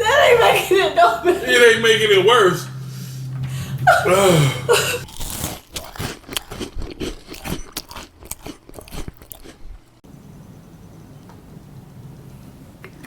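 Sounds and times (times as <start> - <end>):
faint steady hum: 0.0 - 13.0
person crunching and chewing food: 5.0 - 10.0.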